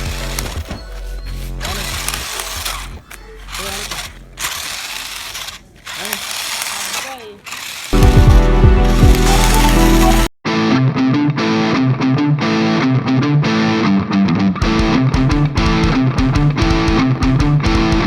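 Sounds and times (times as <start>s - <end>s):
toy car motor and gears: 0.0s - 10.3s.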